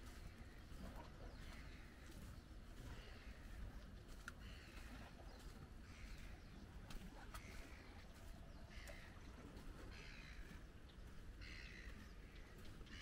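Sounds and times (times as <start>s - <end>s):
bird calling: 0.0s - 13.0s
low rumble of wind: 0.0s - 13.0s
light clicks: 4.1s - 4.9s.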